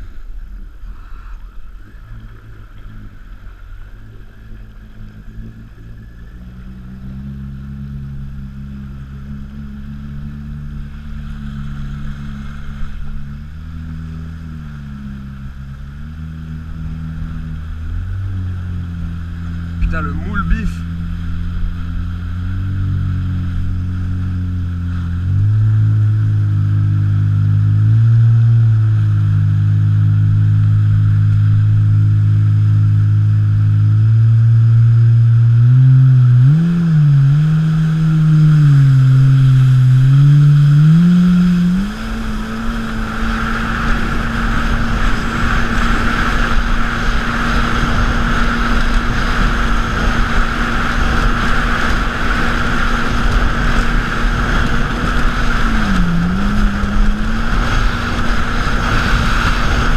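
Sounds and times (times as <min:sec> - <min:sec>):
jet ski engine running: 0:00.0 - 0:59.9
rushing wind and water: 0:00.0 - 0:59.9.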